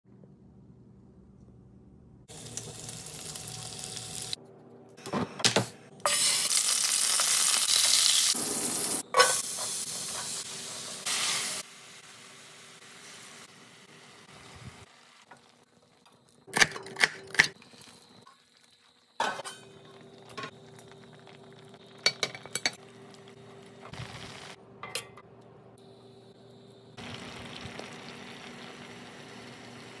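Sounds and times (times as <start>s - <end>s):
food sizzling in a pan: 2.3s - 4.4s, 6.1s - 16.5s, 17.5s - 24.6s, 25.9s - 30.0s
metal tongs clinking on pan: 24.8s - 25.2s.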